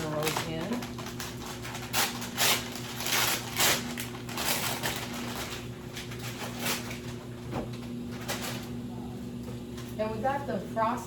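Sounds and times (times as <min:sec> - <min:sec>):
crinkling rustles: 0:00.0 - 0:07.2
steady low hum: 0:00.0 - 0:11.0.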